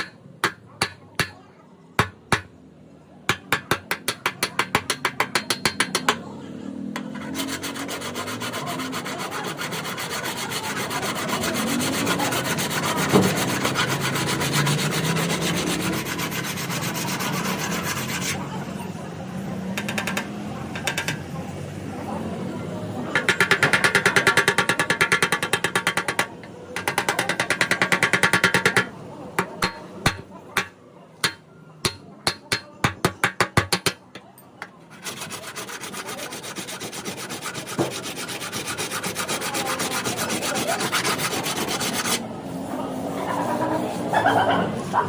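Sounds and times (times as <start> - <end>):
hammer taps on car panel: 2.0 - 2.6, 3.3 - 6.2
rasping rubbing on metal panel: 7.0 - 18.4, 23.2 - 34.0, 34.9 - 42.2.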